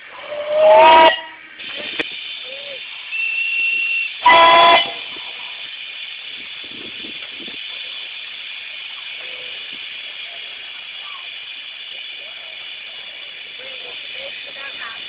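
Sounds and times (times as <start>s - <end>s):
steam hissing: 0.0s - 15.0s
steam whistle blast: 0.2s - 1.5s, 3.1s - 5.1s
thin whistle tone: 2.4s - 5.0s.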